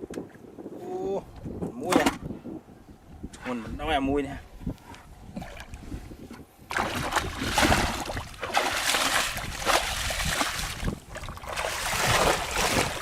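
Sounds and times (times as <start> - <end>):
water splashing and sloshing: 5.3 - 13.0.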